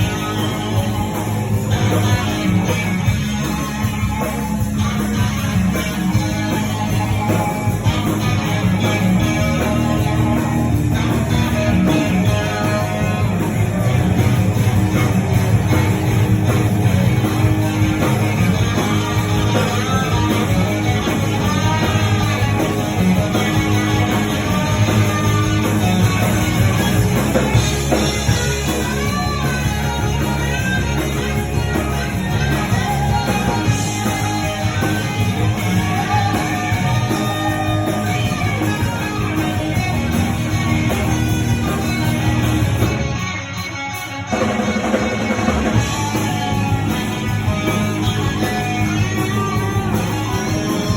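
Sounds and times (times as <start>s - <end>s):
electric guitar: 0.0s - 50.9s
live rock band playing: 0.0s - 50.9s.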